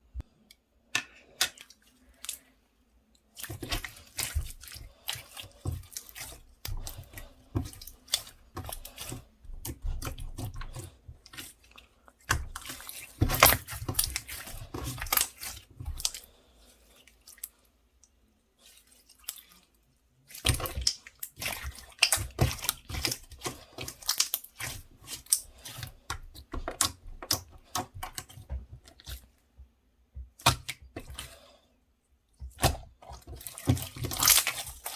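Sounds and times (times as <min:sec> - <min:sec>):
slime squished by hand: 0:32.5 - 0:34.9.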